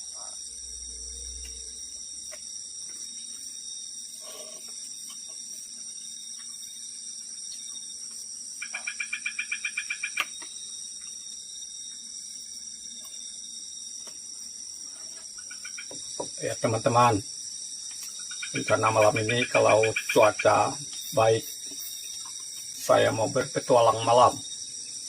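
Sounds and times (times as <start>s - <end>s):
night insect chorus: 0.0s - 25.0s
animal rapid chirps: 8.6s - 10.3s, 18.2s - 20.8s.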